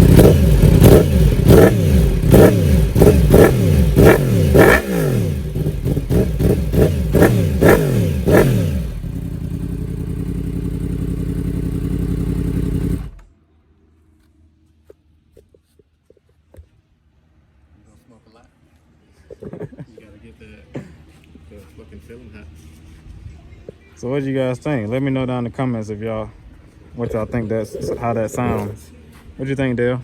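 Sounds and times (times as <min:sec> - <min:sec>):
motorcycle engine revving and idling: 0:00.0 - 0:13.4, 0:27.1 - 0:28.9.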